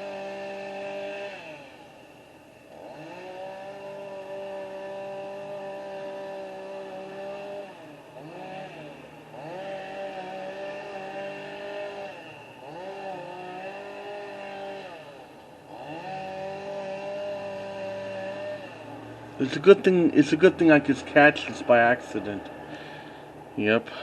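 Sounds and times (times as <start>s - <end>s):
chainsaw revving: 0.0s - 24.0s.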